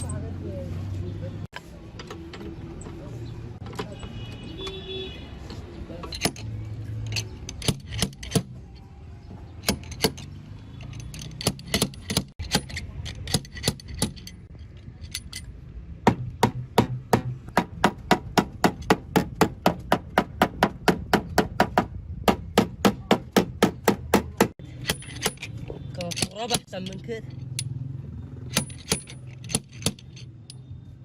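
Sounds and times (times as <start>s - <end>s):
hammer knocking: 16.0s - 25.4s.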